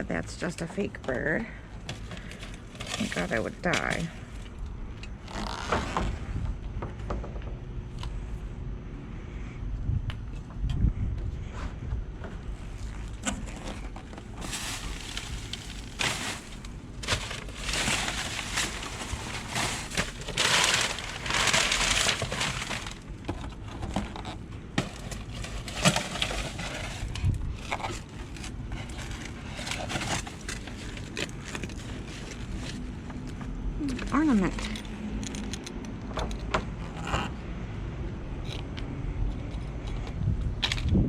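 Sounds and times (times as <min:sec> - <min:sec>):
plastic bags rustling and crinkling: 0:01.8 - 0:04.5, 0:12.6 - 0:33.3
objects knocking and clattering: 0:13.5 - 0:28.4.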